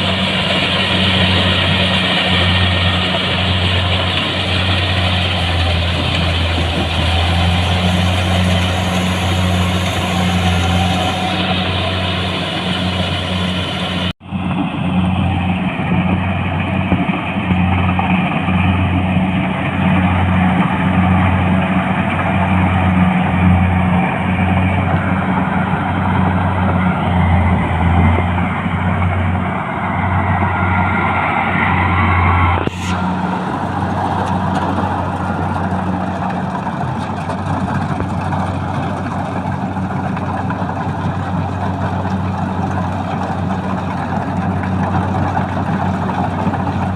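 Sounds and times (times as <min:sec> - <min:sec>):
tractor engine droning: 0:00.0 - 0:46.9.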